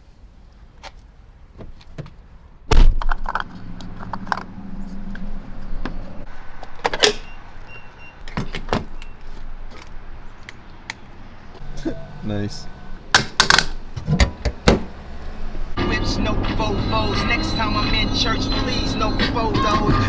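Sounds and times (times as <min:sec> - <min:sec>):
truck door shutting: 0:13.2 - 0:15.3.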